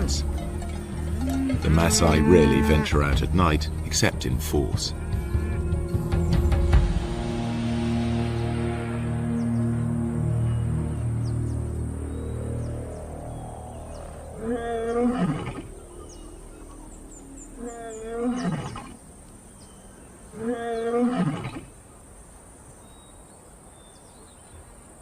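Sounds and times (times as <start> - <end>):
lion roaring: 13.8 - 19.0.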